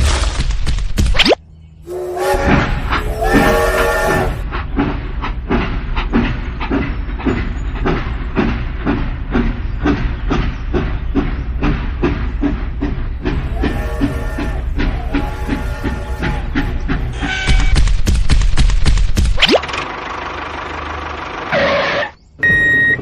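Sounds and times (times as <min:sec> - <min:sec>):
train rhythmic chugging: 0:01.7 - 0:19.1, 0:19.8 - 0:21.5
train horn chord: 0:01.8 - 0:04.4, 0:13.5 - 0:17.5.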